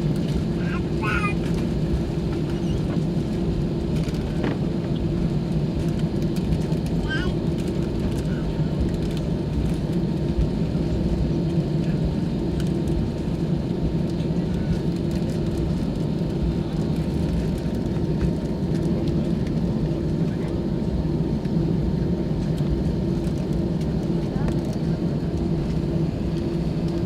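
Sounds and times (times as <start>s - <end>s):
jet engines rumbling: 0.0s - 27.0s.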